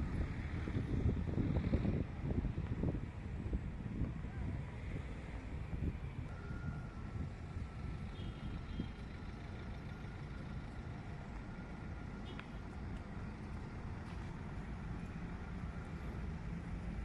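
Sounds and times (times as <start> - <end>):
vehicle driving on road: 0.0 - 17.0.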